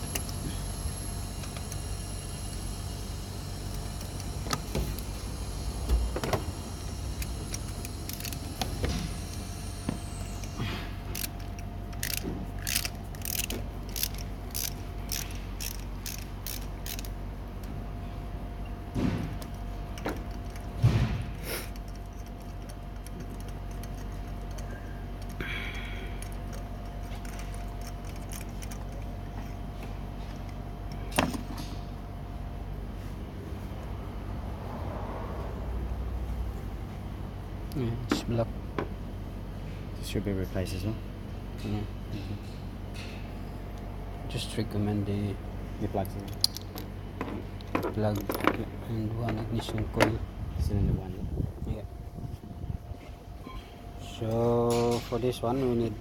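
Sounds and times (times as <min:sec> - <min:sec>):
ratchet wrench clicking: 0:00.0 - 0:17.2, 0:21.6 - 0:29.6
steady low hum: 0:00.0 - 0:56.0.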